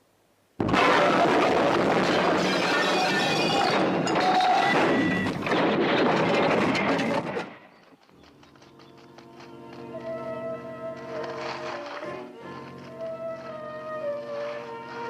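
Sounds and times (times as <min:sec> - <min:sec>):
glass breaking: 0:00.6 - 0:07.6
vehicle crash smash: 0:00.6 - 0:07.7.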